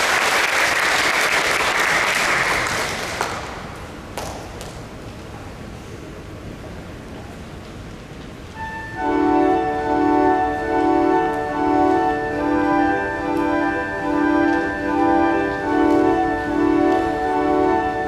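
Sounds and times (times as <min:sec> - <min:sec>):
pipe organ chords: 0:08.6 - 0:18.0.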